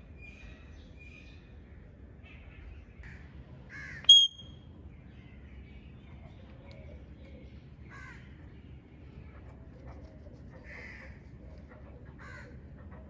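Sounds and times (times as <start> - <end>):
parrot shrill squawk: 4.1 - 4.4
parrot whistles and chirps: 4.1 - 4.5.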